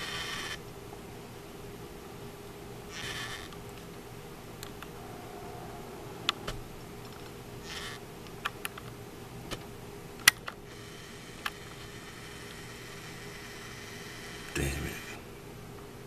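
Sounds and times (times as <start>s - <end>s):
steady low hum: 3.8s - 10.2s.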